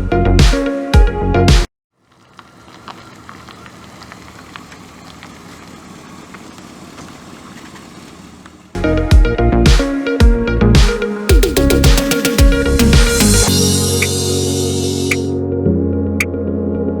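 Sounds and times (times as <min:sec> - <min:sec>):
faint ticks: 0:02.0 - 0:08.6
car engine idling: 0:02.0 - 0:09.0.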